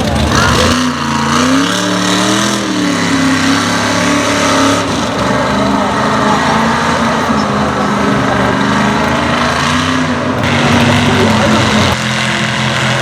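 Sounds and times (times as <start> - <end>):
truck engine running hard: 0.0 - 13.0.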